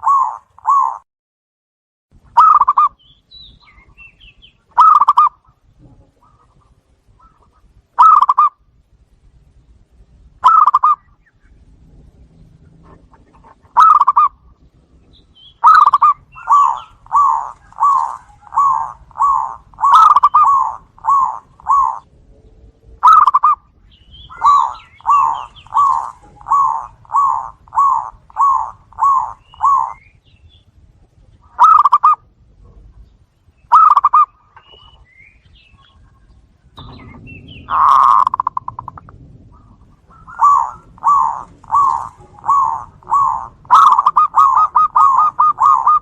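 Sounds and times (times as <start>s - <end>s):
dove cooing: 0.0s - 1.0s, 2.4s - 3.0s, 4.8s - 8.6s, 10.4s - 11.1s, 12.7s - 14.4s, 15.5s - 22.1s, 23.0s - 30.1s, 31.4s - 32.9s, 33.7s - 35.0s, 35.7s - 46.0s.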